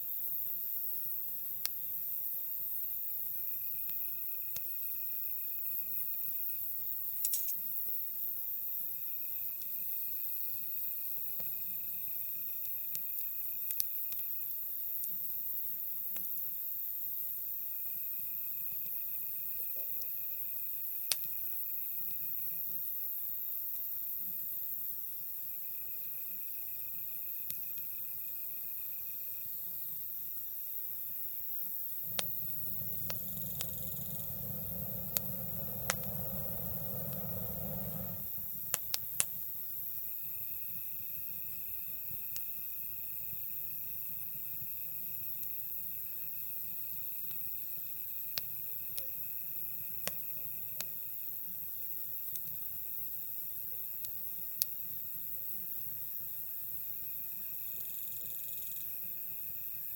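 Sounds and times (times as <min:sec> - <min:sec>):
insects trilling: 0:00.0 - 0:59.9
campfire crackling: 0:31.3 - 0:40.1
low rumble: 0:32.0 - 0:38.6.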